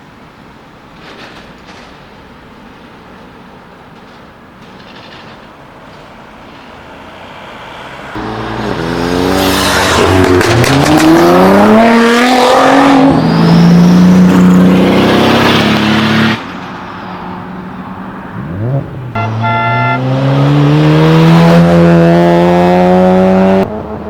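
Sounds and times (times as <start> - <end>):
car engine accelerating hard: 7.6 - 16.4, 18.4 - 24.0.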